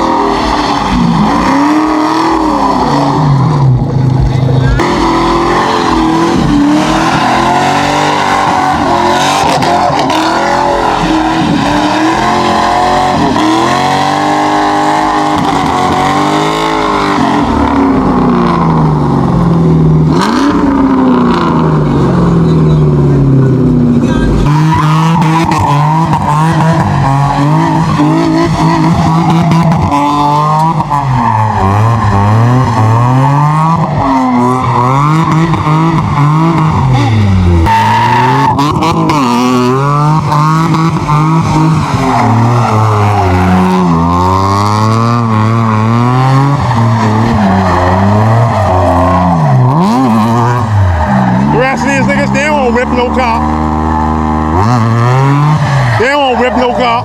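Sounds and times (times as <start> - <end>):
car engine revving hard: 0.0 - 57.0
tyres squealing: 45.2 - 57.0.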